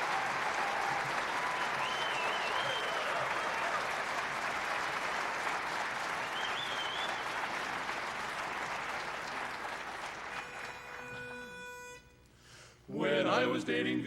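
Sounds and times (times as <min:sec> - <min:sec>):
audience applause: 0:00.0 - 0:11.7
held pitch pipe note: 0:10.3 - 0:12.2.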